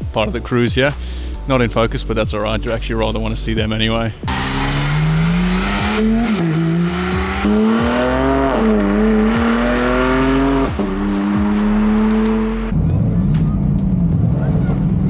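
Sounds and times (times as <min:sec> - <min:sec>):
car engine accelerating hard: 0:04.2 - 0:13.2.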